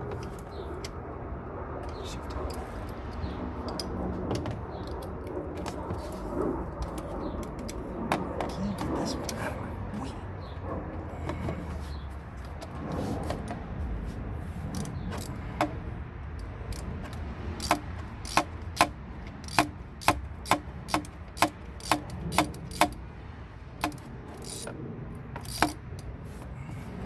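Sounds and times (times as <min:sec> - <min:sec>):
hand ratchet clicking: 0:14.7 - 0:15.8, 0:16.4 - 0:23.0, 0:23.8 - 0:24.7, 0:25.4 - 0:26.1.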